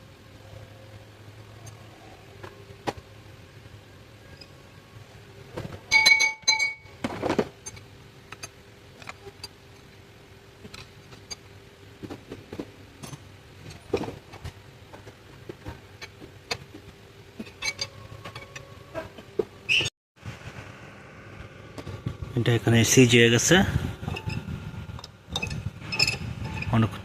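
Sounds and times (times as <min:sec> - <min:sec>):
faint steady hum: 0:00.0 - 0:27.0
metal tools clinking: 0:05.9 - 0:06.9, 0:17.4 - 0:18.7.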